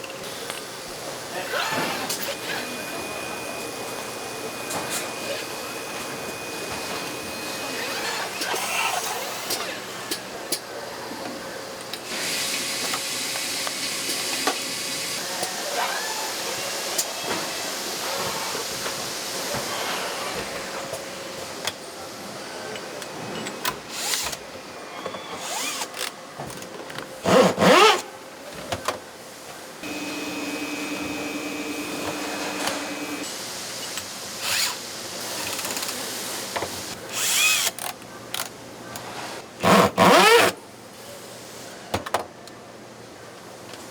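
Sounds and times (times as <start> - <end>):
power tool motor bursts: 29.8 - 33.2, 39.6 - 40.6
machine hum: 29.8 - 33.3.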